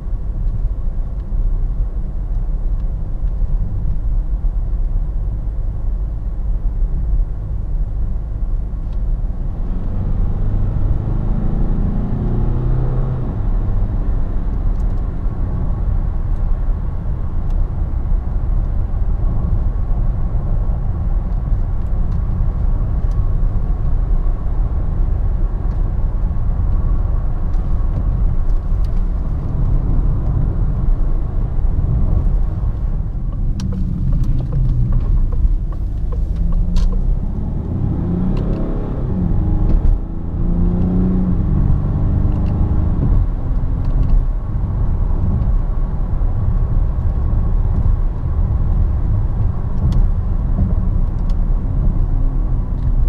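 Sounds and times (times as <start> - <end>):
tyre and road rumble: 9.0 - 53.0
diesel engine accelerating: 9.3 - 15.9, 24.4 - 53.0.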